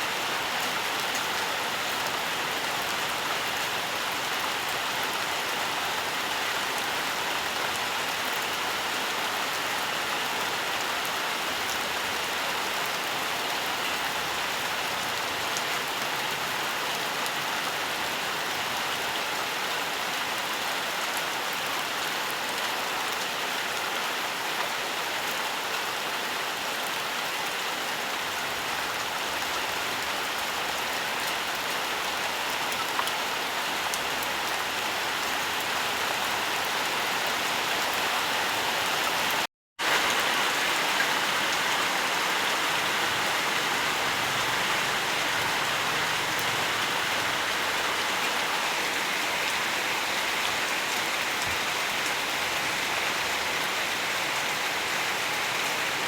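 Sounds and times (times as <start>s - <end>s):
steady rain hiss: 33.3s - 56.0s.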